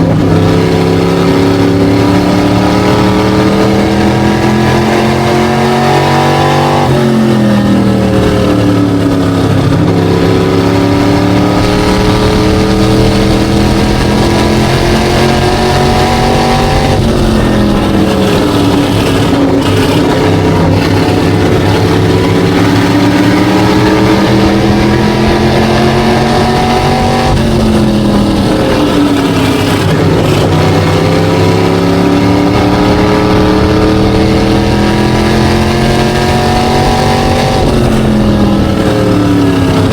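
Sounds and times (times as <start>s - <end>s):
race car engine: 0.0s - 39.9s.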